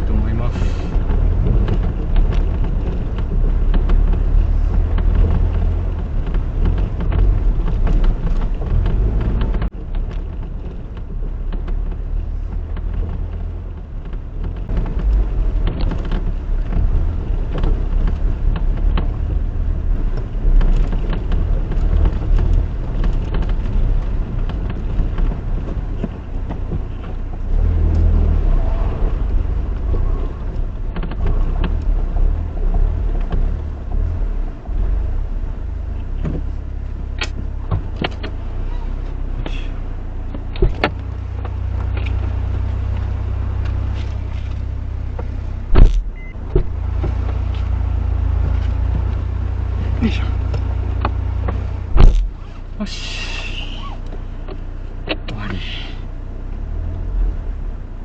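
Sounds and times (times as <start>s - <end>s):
low car engine: 0.0s - 58.0s
road rumble: 0.0s - 58.0s.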